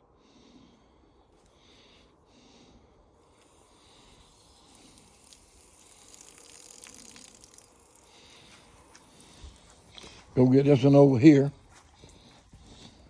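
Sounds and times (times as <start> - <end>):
faint hiss: 2.6 - 10.4.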